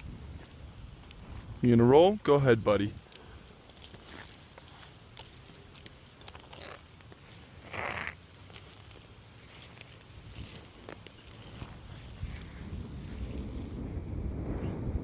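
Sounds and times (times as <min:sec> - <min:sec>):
donkey scuffing on ground: 0:03.0 - 0:13.2.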